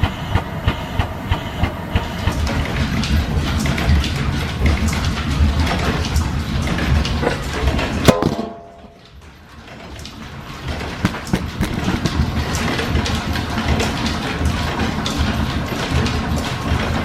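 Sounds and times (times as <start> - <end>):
clicks and knocks: 7.2 - 9.1
sharp metallic clang: 7.2 - 9.1.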